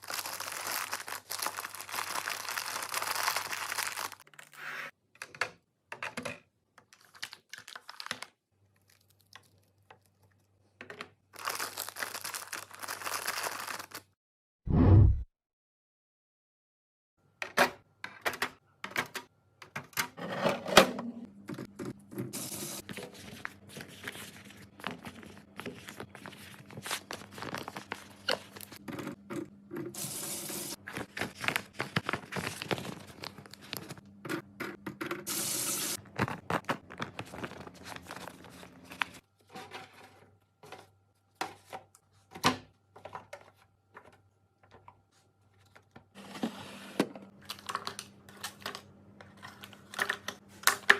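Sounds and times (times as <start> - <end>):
plastic crinkling and tearing: 0.0 - 4.6, 11.4 - 14.2, 24.0 - 28.8, 30.8 - 34.0, 36.0 - 39.2.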